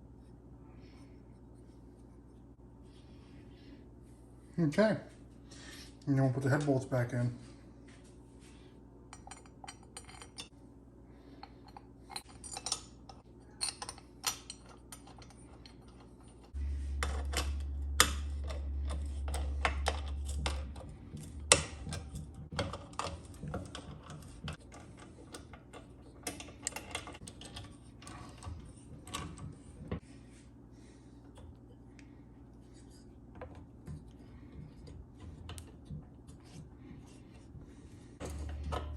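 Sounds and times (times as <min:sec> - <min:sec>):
metal clinks of bolts and tools: 0:11.7 - 0:16.0
steady low rumble: 0:16.6 - 0:22.5.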